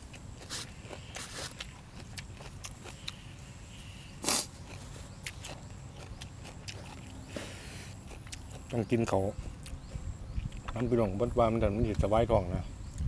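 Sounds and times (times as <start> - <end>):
chewing and crunching: 0.0 - 12.1
loud bite or slurp: 4.2 - 4.8.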